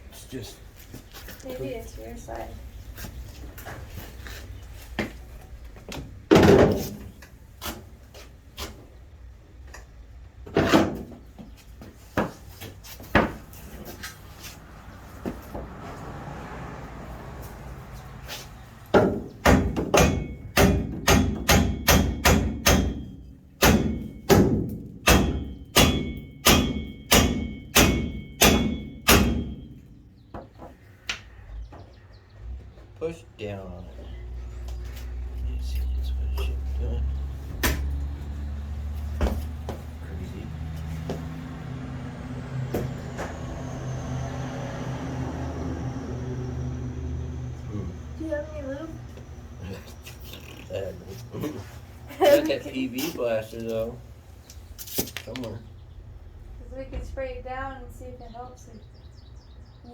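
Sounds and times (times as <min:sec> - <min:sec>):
hammer striking metal: 0:19.0 - 0:29.9.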